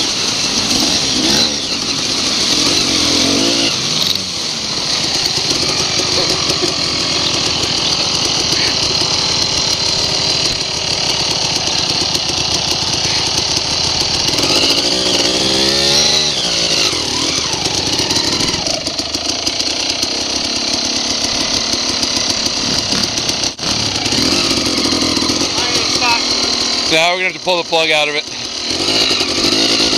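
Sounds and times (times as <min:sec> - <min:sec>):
dirt bike engines buzzing: 0:00.0 - 0:29.9.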